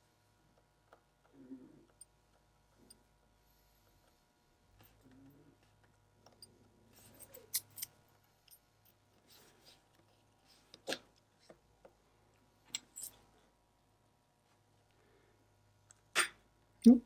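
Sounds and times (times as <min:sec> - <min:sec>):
tweezers clicking on metal parts: 0:06.2 - 0:09.1, 0:12.7 - 0:13.2.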